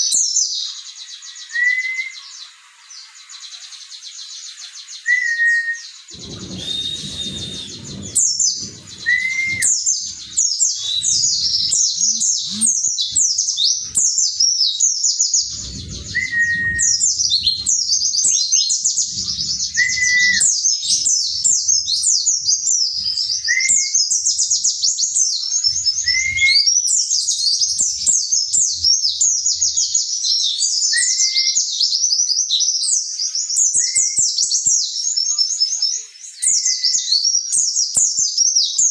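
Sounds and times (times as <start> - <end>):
bird twittering song: 0.0 - 38.9
short rising bird note: 6.1 - 12.8.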